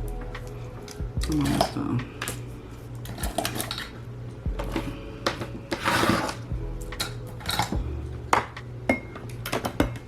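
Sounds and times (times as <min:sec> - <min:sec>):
steady low hum: 0:00.0 - 0:10.0
small items clattering in a cup: 0:03.0 - 0:03.9.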